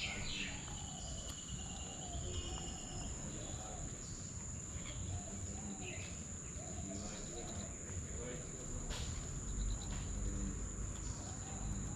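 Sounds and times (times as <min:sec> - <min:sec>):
bird chirps: 0:00.0 - 0:07.8, 0:09.4 - 0:10.4
insect drone: 0:00.0 - 0:11.9.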